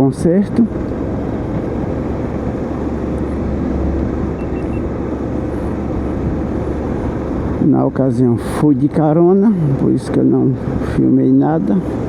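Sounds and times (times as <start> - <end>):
vehicle road rumble: 0.0 - 12.0
faint short beeps: 4.4 - 4.9.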